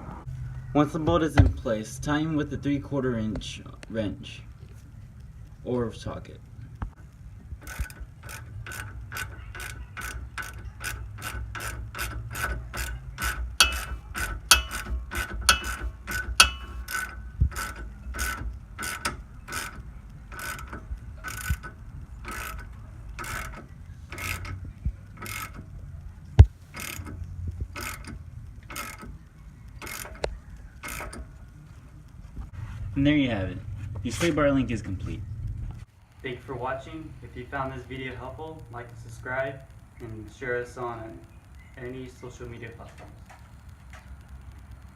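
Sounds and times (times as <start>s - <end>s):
hand ratchet clicking: 6.9s - 32.2s.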